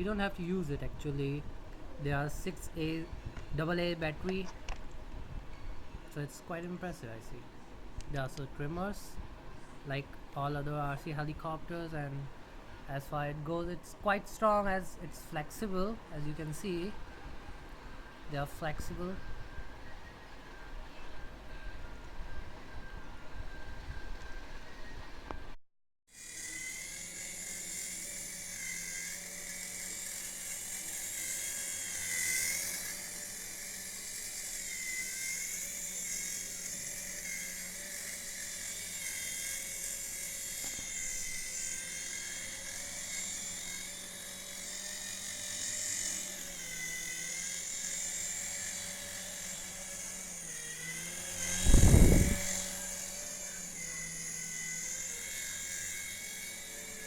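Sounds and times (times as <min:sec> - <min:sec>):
toy helicopter motors whirring: 0:26.1 - 0:57.0.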